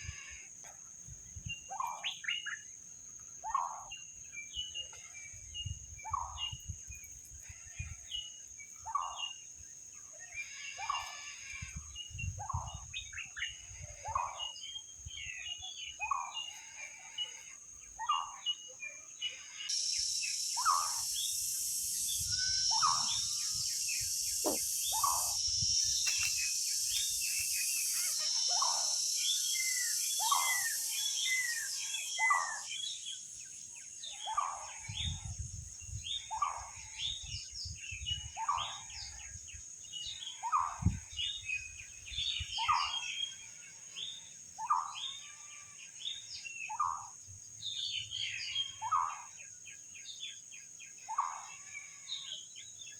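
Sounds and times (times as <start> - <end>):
birds chirping: 0.9 - 43.3
high-pitched insect drone: 19.4 - 37.8
bird repeating short call: 19.7 - 27.1.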